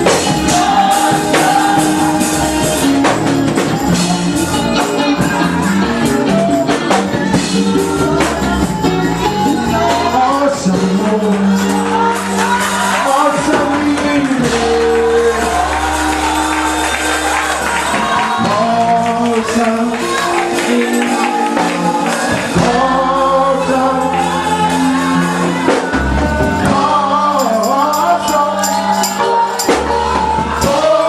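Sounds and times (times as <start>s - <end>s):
band playing: 0.0s - 31.0s
voices singing gospel: 0.0s - 31.0s
tambourine: 27.3s - 30.2s.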